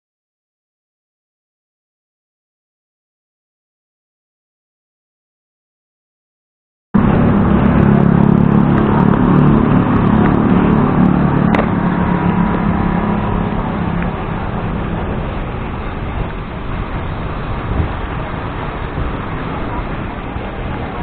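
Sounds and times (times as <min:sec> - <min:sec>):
road and wind noise: 0:07.0 - 0:21.0
vehicle engine running: 0:07.0 - 0:21.0.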